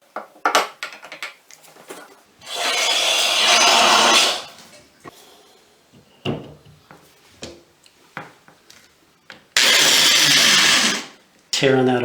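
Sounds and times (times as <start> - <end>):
power drill running: 2.4 - 4.6, 9.6 - 11.2.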